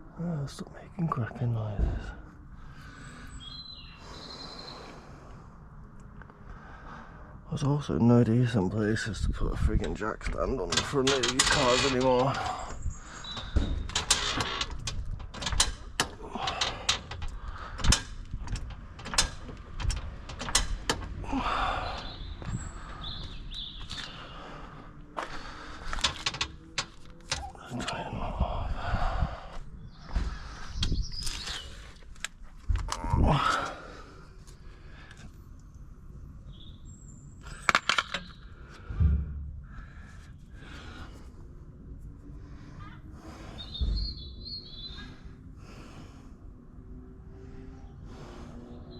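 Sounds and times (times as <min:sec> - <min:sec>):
metal scraping: 0:10.6 - 0:21.1
metallic clicks and clanks of tools: 0:10.7 - 0:12.6, 0:13.2 - 0:21.2, 0:25.9 - 0:27.6, 0:37.5 - 0:38.4
low thump: 0:38.9 - 0:39.8.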